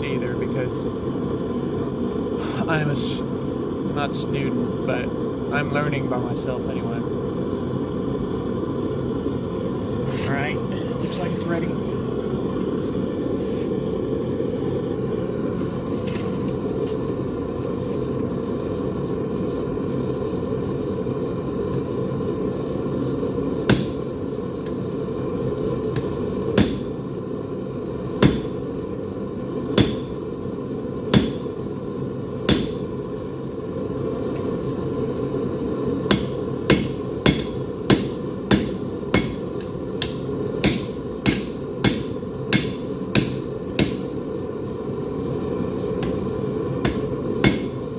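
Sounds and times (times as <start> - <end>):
hammer striking steel on anvil: 23.7 - 24.0, 26.0 - 26.9, 28.2 - 28.6, 29.8 - 30.2, 31.1 - 31.5, 32.5 - 32.9, 36.1 - 44.2, 46.0 - 46.2, 46.8 - 47.8.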